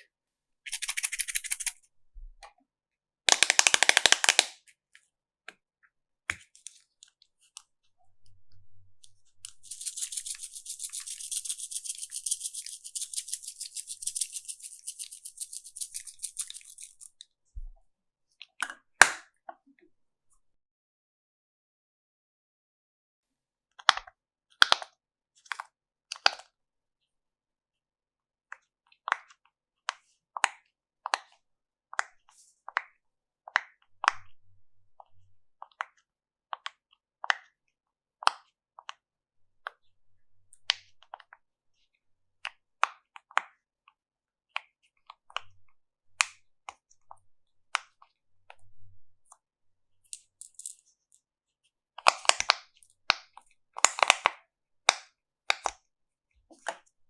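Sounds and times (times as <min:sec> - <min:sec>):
slime sticky clicks and pops: 0:03.3 - 0:04.5.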